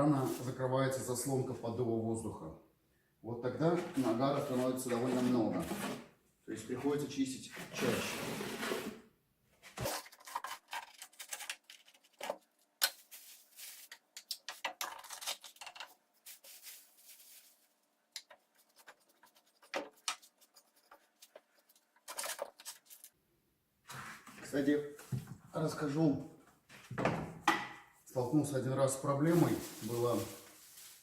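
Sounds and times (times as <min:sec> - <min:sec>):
scoop scraping in fireplace: 0:03.6 - 0:06.1, 0:07.6 - 0:09.0.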